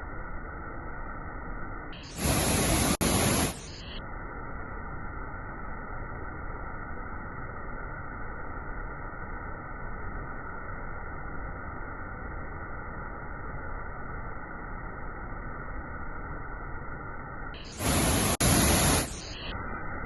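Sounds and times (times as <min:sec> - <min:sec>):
loud rush of noise: 0:02.1 - 0:04.0, 0:17.6 - 0:20.0
waterfall water rushing: 0:17.8 - 0:19.1.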